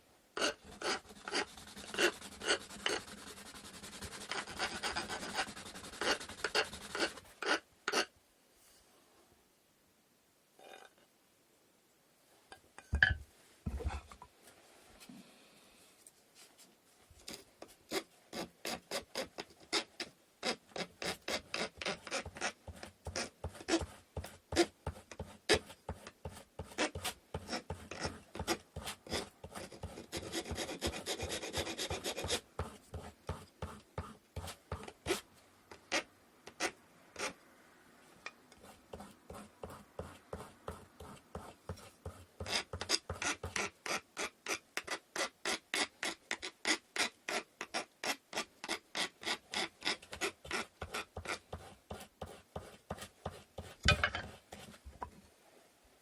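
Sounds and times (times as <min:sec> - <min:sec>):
hand sanding wood: 0:00.6 - 0:07.2.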